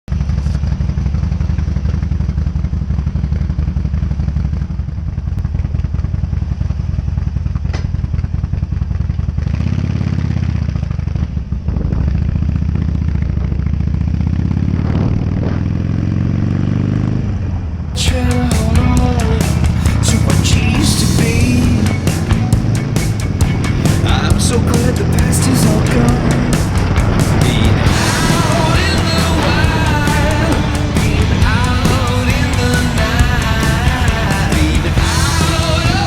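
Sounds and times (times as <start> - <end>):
motorcycle engine revving: 0.0 - 36.0
music: 18.0 - 36.0.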